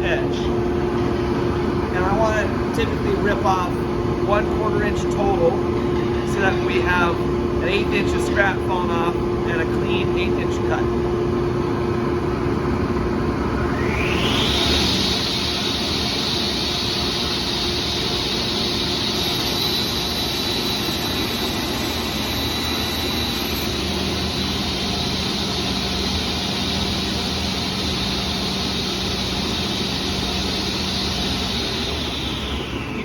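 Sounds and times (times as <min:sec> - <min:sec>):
table saw whining: 0:13.5 - 0:33.0
dust collector rushing: 0:14.0 - 0:33.0.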